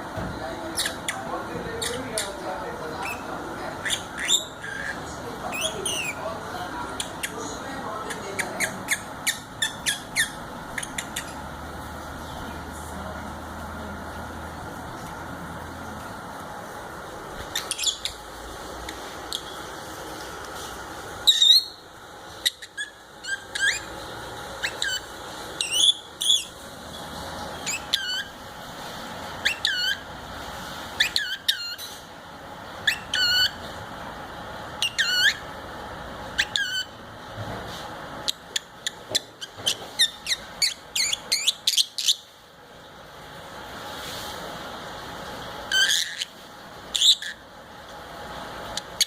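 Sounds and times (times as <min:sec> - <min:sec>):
lovebird chirping: 0:00.7 - 0:12.7, 0:17.4 - 0:18.3, 0:18.9 - 0:19.7, 0:21.2 - 0:24.0, 0:24.6 - 0:28.4, 0:29.4 - 0:30.1, 0:31.0 - 0:32.0, 0:32.8 - 0:33.6, 0:34.8 - 0:35.5, 0:36.4 - 0:37.0, 0:38.2 - 0:42.3, 0:45.7 - 0:46.3, 0:46.9 - 0:47.4.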